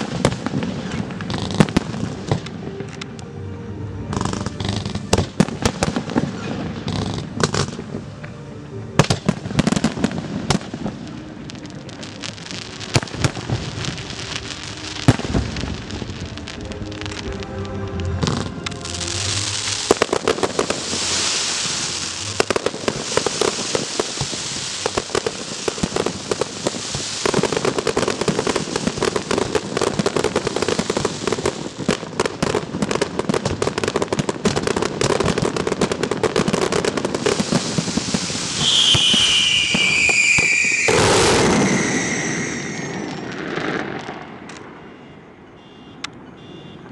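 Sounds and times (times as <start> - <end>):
fireworks crackling bangs: 0.0 - 3.0, 4.1 - 8.0, 9.0 - 44.8
firework whistles falling in pitch: 37.2 - 43.8.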